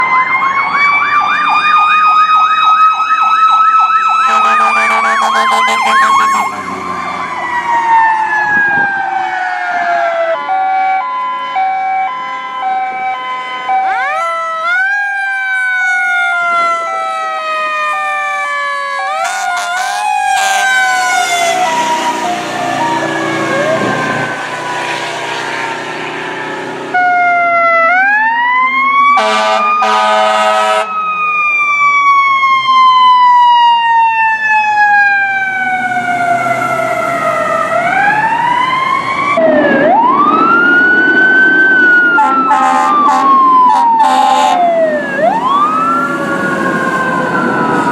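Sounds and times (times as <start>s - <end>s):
fire truck sirens wailing: 0.0s - 47.9s
horn blasts: 4.2s - 6.8s, 19.1s - 27.4s, 29.2s - 30.9s, 42.2s - 44.6s.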